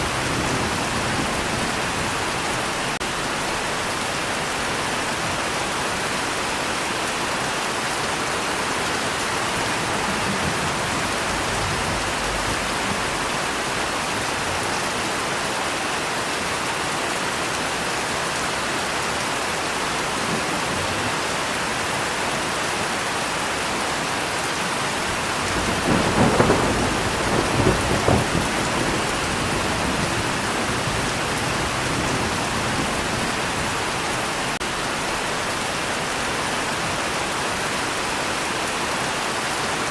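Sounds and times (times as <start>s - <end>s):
thunder rumbling: 0.0s - 3.7s, 9.1s - 14.8s, 25.0s - 35.2s
heavy rain: 0.0s - 39.9s.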